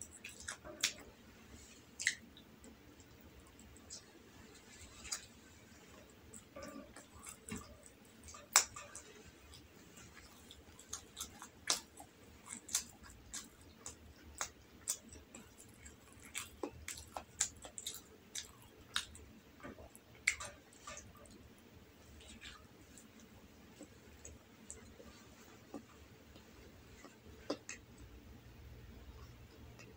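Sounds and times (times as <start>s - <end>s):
person chewing: 0.0s - 28.1s
wet mouth clicks: 2.0s - 4.1s.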